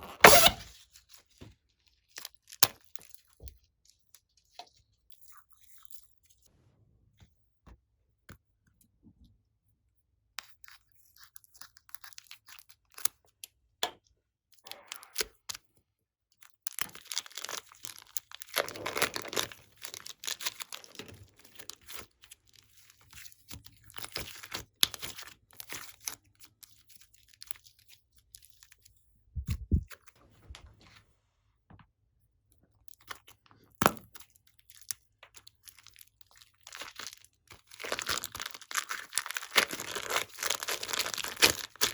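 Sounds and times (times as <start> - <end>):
slime squeezed and stretched: 35.8 - 41.9.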